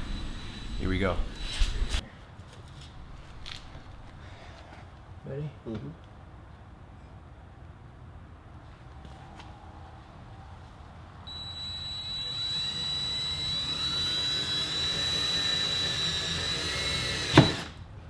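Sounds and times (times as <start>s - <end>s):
power drill whining: 0.0s - 2.0s, 11.3s - 17.8s.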